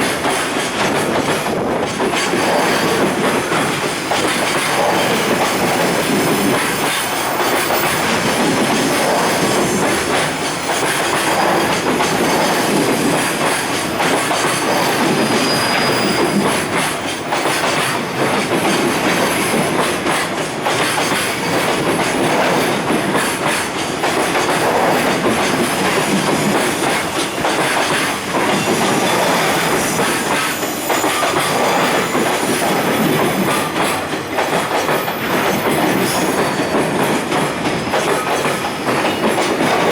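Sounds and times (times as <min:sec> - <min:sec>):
freight train wheels clacking: 0:00.0 - 0:39.9
high squeal: 0:14.6 - 0:16.6, 0:28.6 - 0:33.8.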